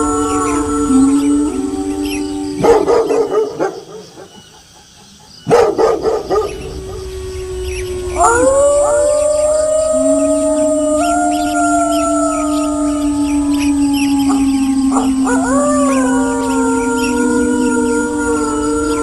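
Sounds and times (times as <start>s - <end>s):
wolves howling: 0.0s - 4.3s, 5.5s - 19.0s
dogs barking: 2.6s - 4.4s, 5.4s - 7.0s.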